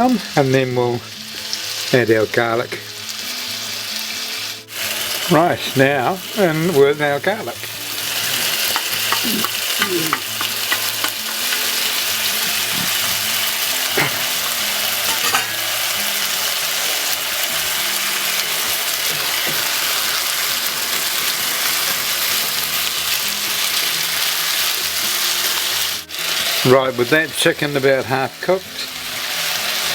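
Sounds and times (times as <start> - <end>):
food sizzling in a wok: 0.0 - 29.9
utensil knocking against wok: 8.4 - 12.2, 15.1 - 15.6.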